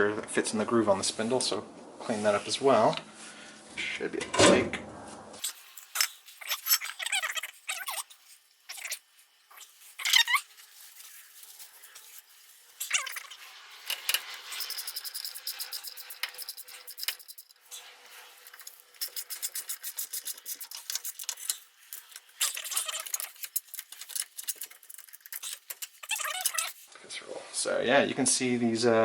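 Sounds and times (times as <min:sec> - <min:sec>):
metal parts scraping and rattling: 0:05.4 - 0:26.9.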